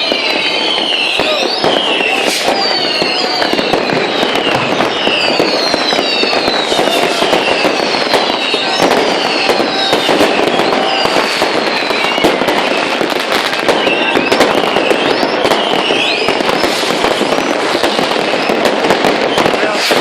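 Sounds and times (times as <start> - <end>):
firecrackers crackling and banging: 0.0 - 20.0
whistling rockets: 0.0 - 20.0.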